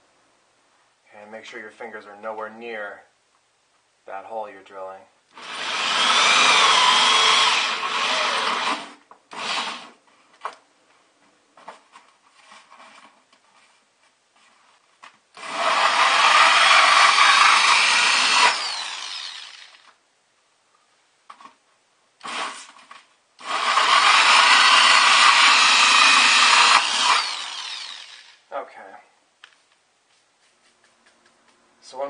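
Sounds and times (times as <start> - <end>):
power drill cutting styrofoam: 5.3 - 10.0, 15.4 - 20.0, 22.2 - 22.8, 23.4 - 28.4.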